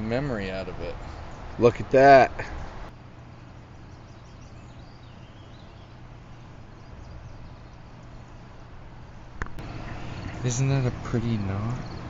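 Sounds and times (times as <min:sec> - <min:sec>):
bird calls chirping: 0:02.5 - 0:08.6, 0:09.6 - 0:12.0.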